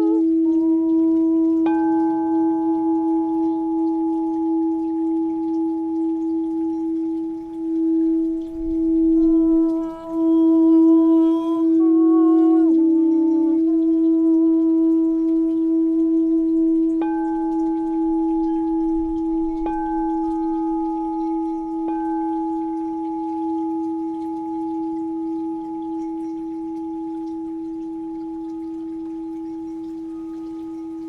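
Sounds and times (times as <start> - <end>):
singing bowl ringing: 0.0 - 31.0
singing bowl struck lightly: 16.3 - 31.0.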